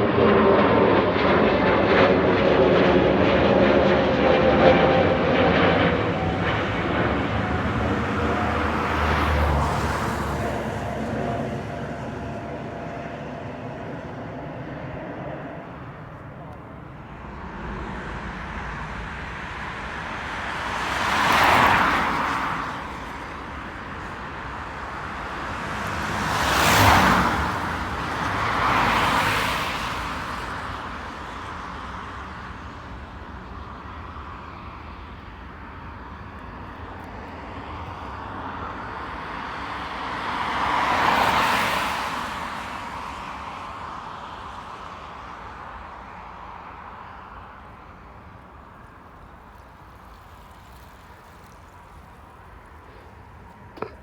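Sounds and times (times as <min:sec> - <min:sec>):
low rumble: 0:00.0 - 0:09.6
vehicles passing by: 0:00.0 - 0:54.0.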